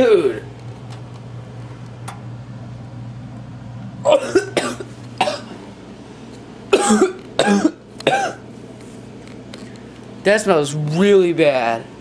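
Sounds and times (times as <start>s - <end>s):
man coughing: 4.1s - 5.6s, 6.7s - 8.4s.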